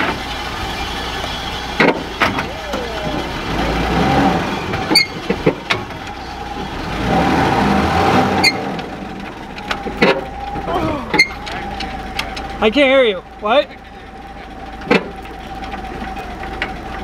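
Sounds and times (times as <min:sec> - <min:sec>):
jeep engine running: 0:00.0 - 0:17.0
steady high whine: 0:00.0 - 0:17.0.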